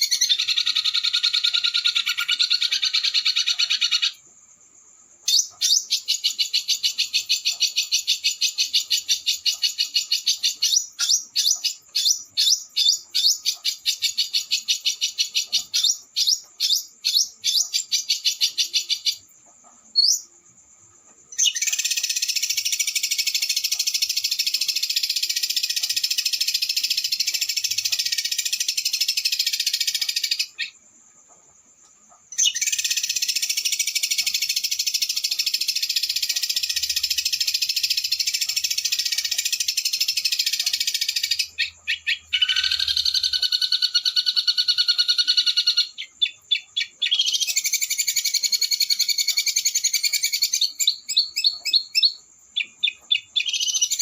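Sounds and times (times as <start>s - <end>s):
songbirds high-pitched rolling trills: 32.3s - 54.0s.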